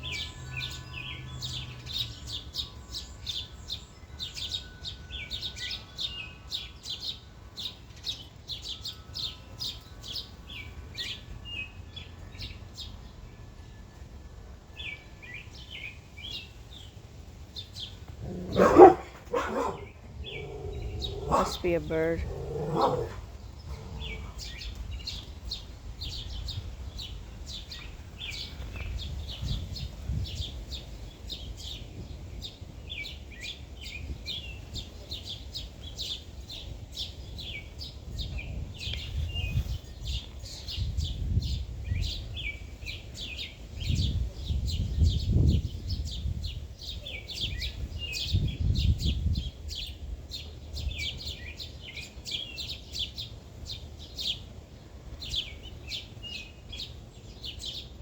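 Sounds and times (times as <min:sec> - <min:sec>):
small birds chirping: 0:00.0 - 0:14.0, 0:14.6 - 0:58.0.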